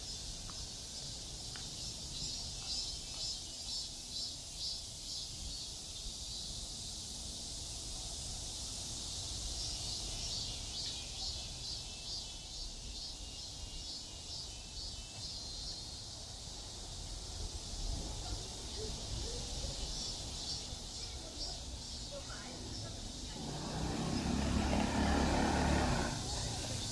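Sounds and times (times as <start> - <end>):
insects chirring: 0.0 - 26.9
distant city traffic: 21.1 - 26.9.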